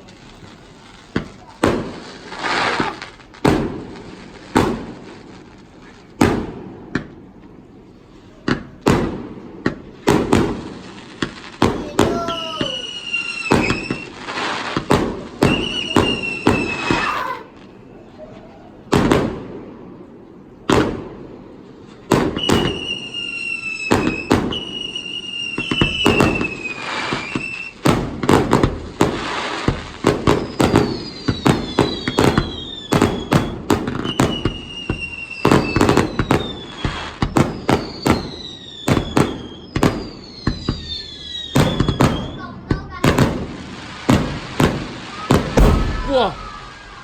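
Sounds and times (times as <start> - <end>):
fireworks bangs and crackles: 0.0 - 18.1, 18.8 - 47.0
falling whistling tones: 12.0 - 14.2, 15.4 - 17.1, 39.5 - 42.0.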